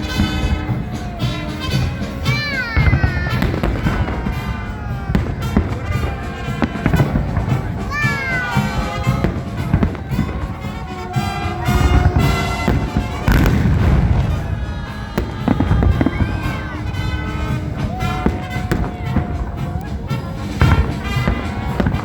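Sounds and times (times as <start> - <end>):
fireworks bangs and crackles: 0.0 - 22.0
music playing: 0.0 - 22.0.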